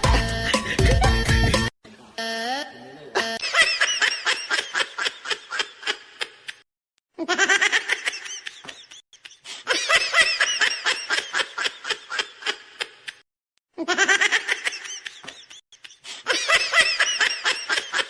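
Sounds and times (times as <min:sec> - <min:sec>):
high-pitched laughter: 0:07.2 - 0:13.2, 0:13.8 - 0:18.0.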